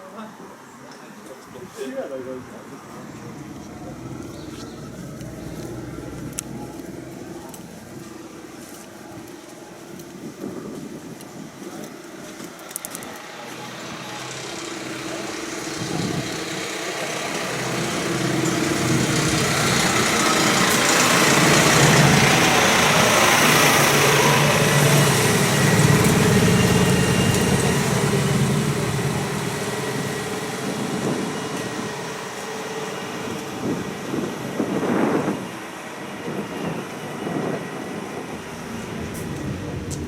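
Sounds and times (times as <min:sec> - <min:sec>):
tractor engine driving past: 0:02.7 - 0:09.0, 0:13.2 - 0:34.1, 0:36.8 - 0:40.0.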